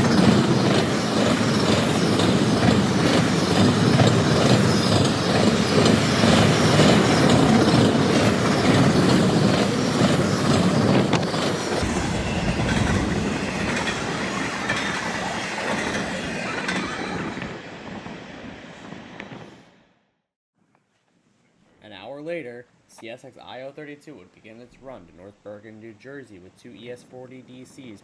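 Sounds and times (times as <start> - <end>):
train wheels clacking on rails: 0.0 - 19.6.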